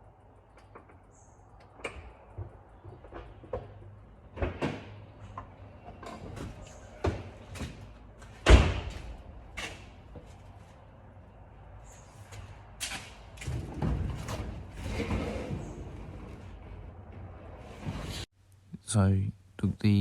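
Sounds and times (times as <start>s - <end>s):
knocks and clunks: 0.6s - 10.5s, 12.3s - 18.3s.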